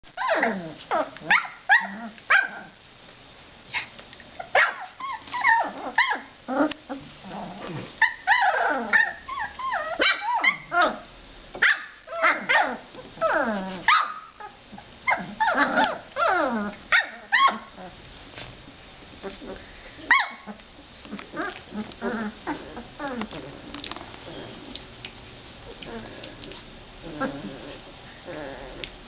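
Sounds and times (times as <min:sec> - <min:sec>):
puppies yipping and whining: 0:00.1 - 0:02.6, 0:03.7 - 0:06.4, 0:08.0 - 0:18.0.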